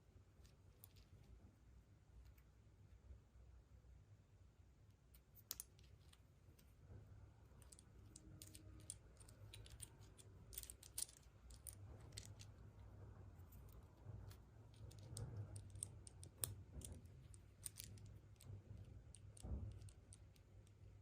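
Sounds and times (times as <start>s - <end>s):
small plastic objects clicking: 5.2s - 6.2s, 7.6s - 12.7s, 13.6s - 21.0s.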